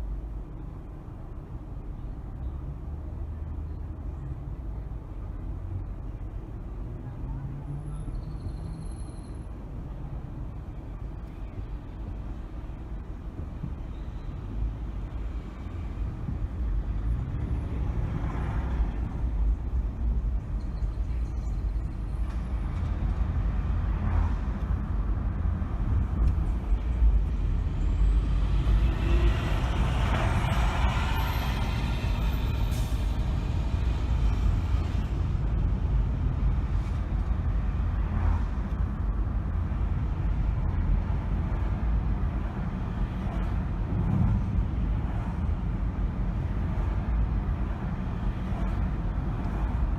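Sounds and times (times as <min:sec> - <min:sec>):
car road and engine rumble: 0:00.0 - 0:49.9
rushing hiss of passing traffic: 0:26.9 - 0:37.1.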